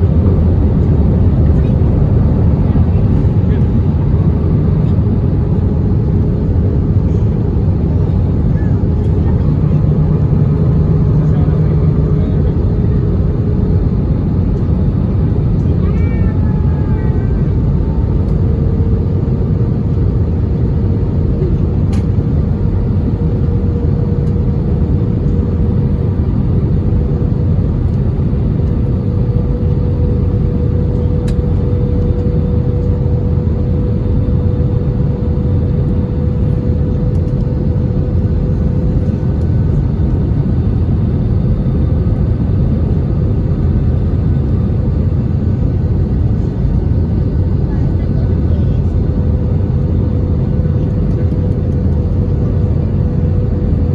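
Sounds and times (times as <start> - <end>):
jet engine and airflow rumble: 0.0 - 53.9
steady whine: 0.0 - 53.9.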